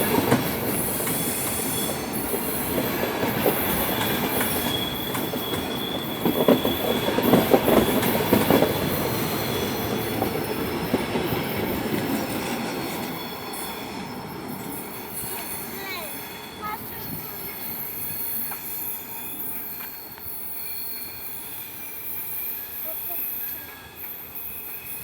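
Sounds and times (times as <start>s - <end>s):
train wheels knocking on rail joints: 0.0s - 13.0s
high wheel squeal: 0.7s - 25.0s.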